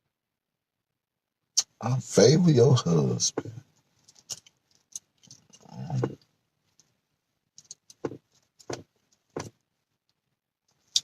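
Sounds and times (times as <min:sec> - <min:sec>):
soft clicks and taps: 0:07.6 - 0:11.0.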